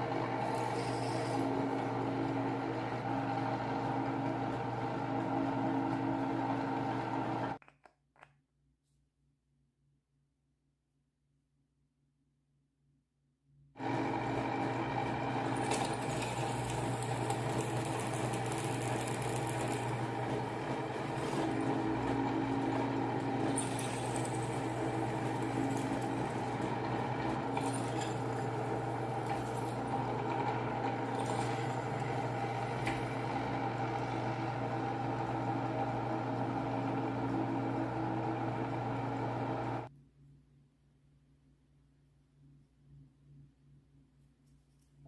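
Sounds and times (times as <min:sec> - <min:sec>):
blender motor humming: 0:00.0 - 0:07.6, 0:13.8 - 0:39.9.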